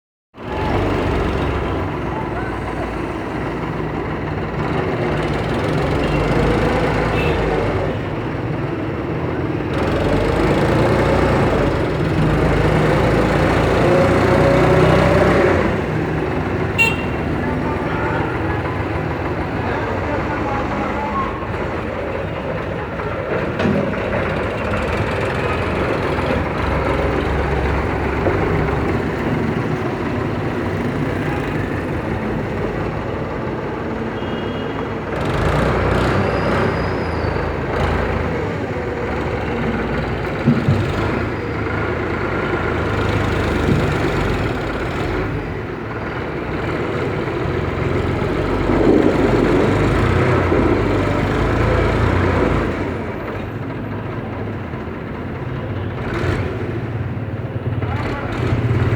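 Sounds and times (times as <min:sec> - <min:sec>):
tractor engine running: 0:07.6 - 0:34.1, 0:37.6 - 0:58.9.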